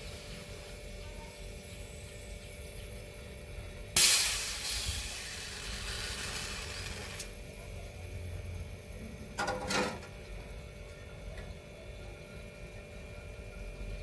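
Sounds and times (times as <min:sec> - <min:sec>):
loud hiss of escaping gas: 0:04.0 - 0:07.3.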